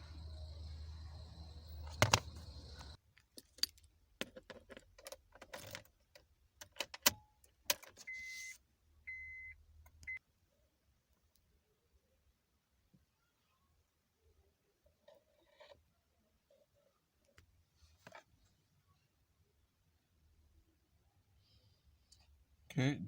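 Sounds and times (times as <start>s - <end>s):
steady low hum: 0.0s - 3.0s
sharp clicks and rattles: 1.6s - 8.0s.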